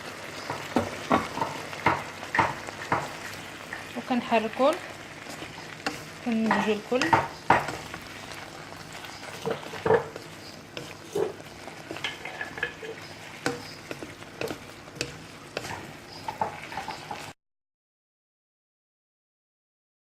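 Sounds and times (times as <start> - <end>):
food frying with steady sizzle: 0.0 - 17.4
utensil knocking against pot: 0.8 - 3.2, 5.9 - 7.9, 9.4 - 10.2.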